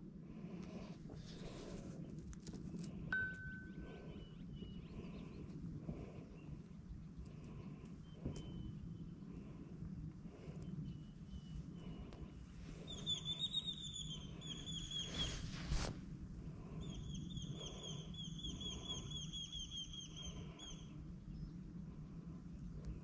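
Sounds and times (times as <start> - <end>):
steady low rumble: 0.0 - 23.0
bird trilling: 12.8 - 15.4.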